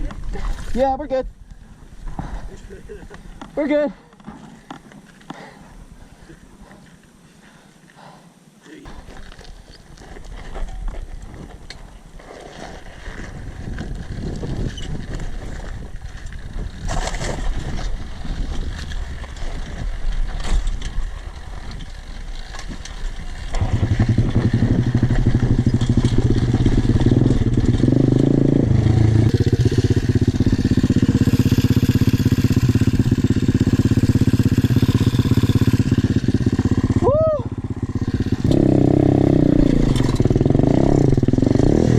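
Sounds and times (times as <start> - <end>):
rough uneven rumbling: 0.0 - 8.2, 8.9 - 41.9
pit bike engine running: 13.6 - 41.9.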